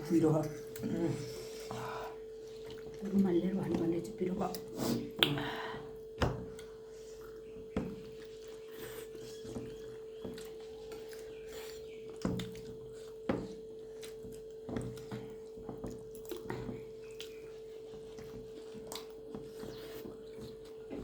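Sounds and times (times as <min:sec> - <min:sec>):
chewing noises: 0:06.6 - 0:21.0.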